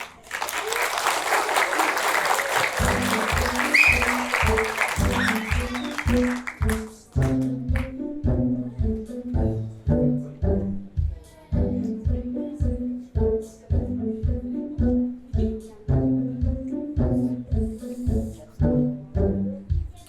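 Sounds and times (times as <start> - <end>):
audience applause: 0.0 - 7.4
music with repeating bass line: 2.8 - 19.8.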